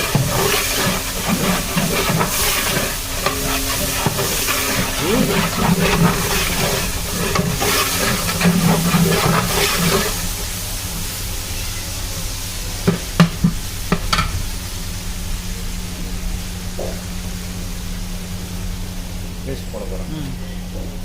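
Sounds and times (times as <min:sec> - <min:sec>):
ladle scraping a pot: 0:00.0 - 0:10.4
food sizzling in a pot: 0:00.0 - 0:19.4
steady low hum: 0:00.0 - 0:21.0.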